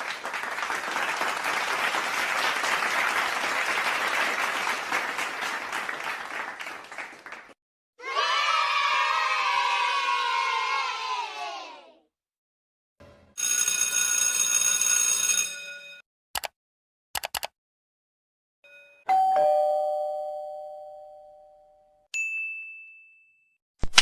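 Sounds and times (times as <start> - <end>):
clicks: 17.2 - 17.5
doorbell-like chime: 18.6 - 23.6
short high ding: 18.7 - 23.6.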